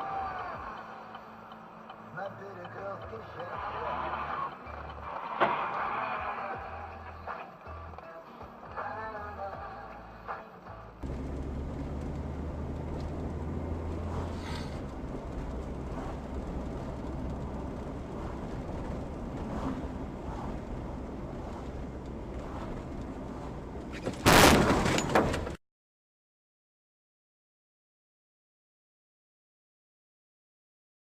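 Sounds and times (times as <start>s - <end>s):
vehicle collision crash: 5.3s - 5.8s, 23.9s - 25.6s
car engine and road rumble: 10.0s - 25.6s.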